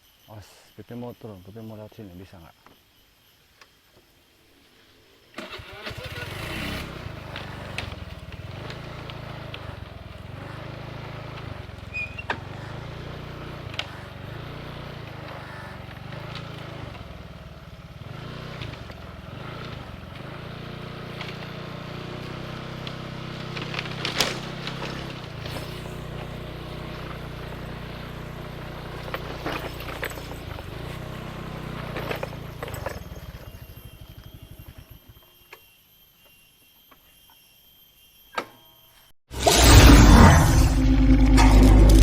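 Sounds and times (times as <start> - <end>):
vehicle engine running at low revs: 6.0 - 35.2, 39.4 - 42.0.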